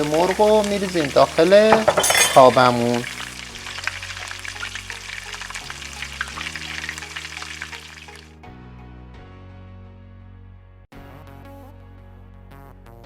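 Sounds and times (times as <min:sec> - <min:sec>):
onion sizzling in hot oil: 0:00.0 - 0:08.3
soft background music: 0:00.0 - 0:13.0.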